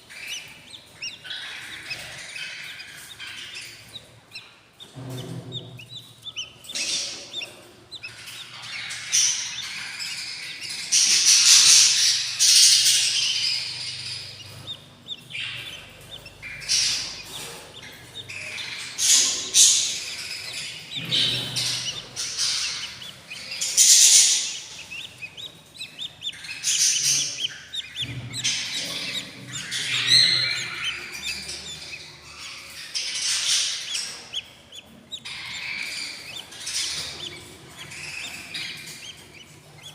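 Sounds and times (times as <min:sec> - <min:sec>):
chicks raspy begging calls: 0:00.0 - 0:39.9.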